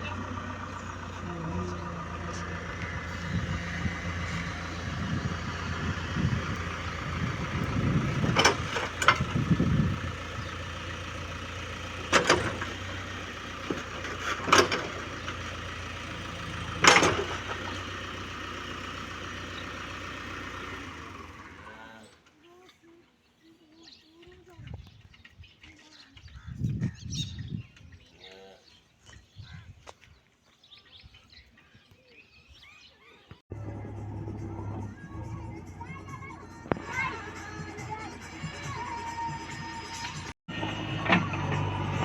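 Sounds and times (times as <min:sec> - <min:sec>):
diesel engine running: 0:00.0 - 0:22.2, 0:33.5 - 0:42.0
sharp engine knocks: 0:02.4 - 0:10.6, 0:12.0 - 0:13.0, 0:13.6 - 0:18.0, 0:40.5 - 0:42.0.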